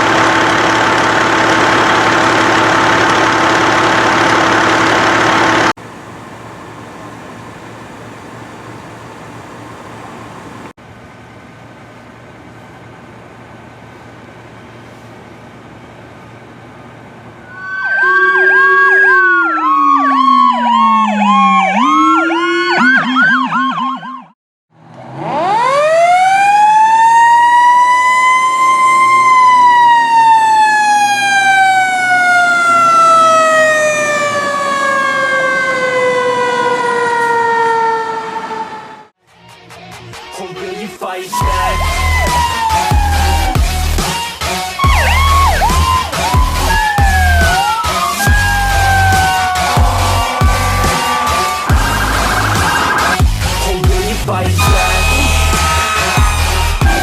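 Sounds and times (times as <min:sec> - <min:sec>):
electronic siren yelping: 0:17.4 - 0:24.4, 0:25.2 - 0:39.1, 0:41.4 - 0:57.0
siren winding up and falling: 0:17.4 - 0:24.4, 0:25.0 - 0:39.1, 0:41.4 - 0:54.0, 0:54.6 - 0:57.0.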